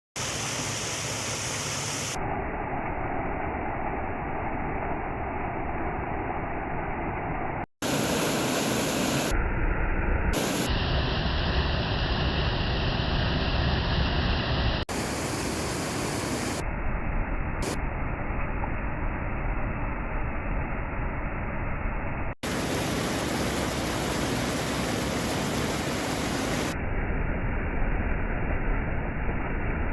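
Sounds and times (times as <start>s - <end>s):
waterfall rushing: 22.4s - 26.8s.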